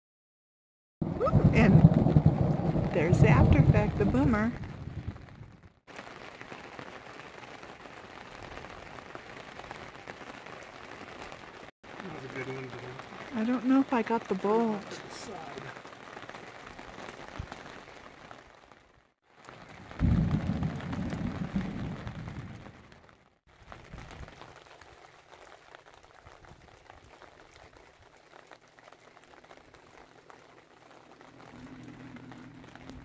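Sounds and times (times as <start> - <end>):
thunder rumble: 1.0 - 5.8, 19.6 - 23.1
rain hiss: 1.2 - 33.0.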